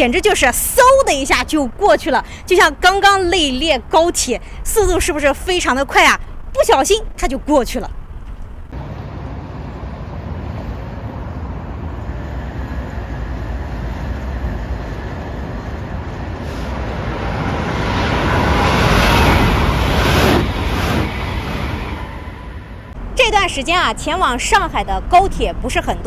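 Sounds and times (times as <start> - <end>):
road traffic noise: 0.0 - 4.7, 7.8 - 26.0
vehicle passing: 15.9 - 23.2.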